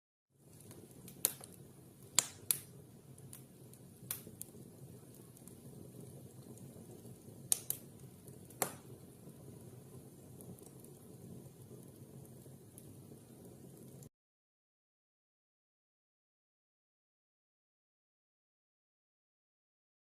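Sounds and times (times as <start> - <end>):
fire crackling: 0.4 - 14.1
fire popping: 0.4 - 14.1.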